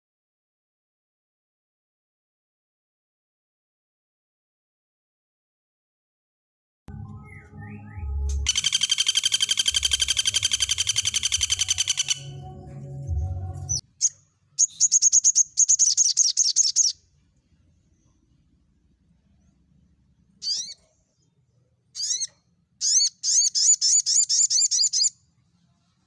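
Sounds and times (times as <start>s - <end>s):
songbird trilling: 7.3s - 12.4s, 13.9s - 17.0s, 20.4s - 20.8s, 22.0s - 25.1s
bird chattering: 8.5s - 12.4s, 14.0s - 17.0s, 20.4s - 20.8s, 22.0s - 25.1s.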